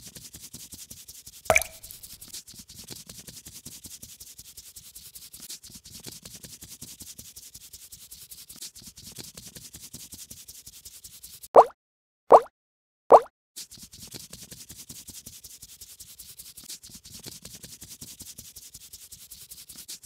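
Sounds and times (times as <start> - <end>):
paintbrush rubbing on paper: 10.0 - 11.4, 13.8 - 20.0.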